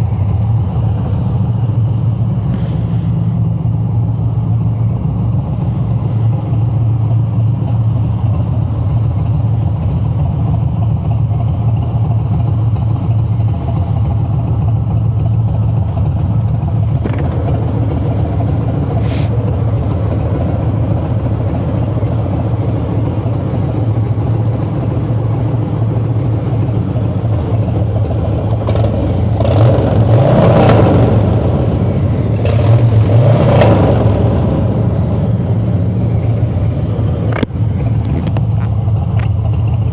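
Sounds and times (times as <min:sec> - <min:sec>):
motorcycle engine running: 0:00.0 - 0:39.9
motorcycle throttle surges: 0:16.8 - 0:21.7.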